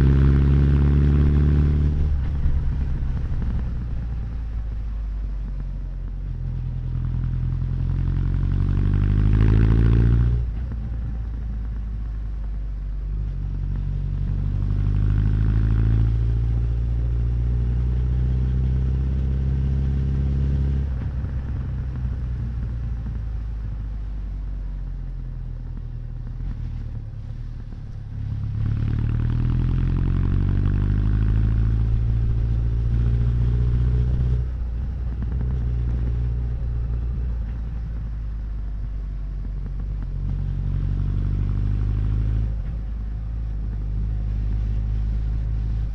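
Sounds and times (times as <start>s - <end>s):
motorcycle engine revving: 28.2s - 38.6s, 39.4s - 45.9s.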